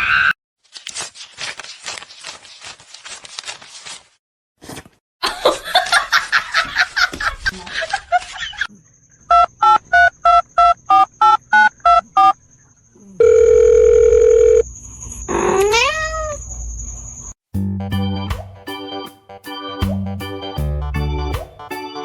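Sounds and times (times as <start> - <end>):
cat meowing: 15.4 - 16.4.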